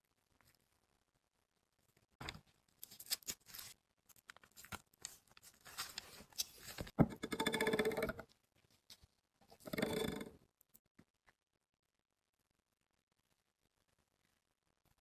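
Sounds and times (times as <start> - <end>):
rapid rasping scraping: 7.0 - 8.3, 9.6 - 10.4.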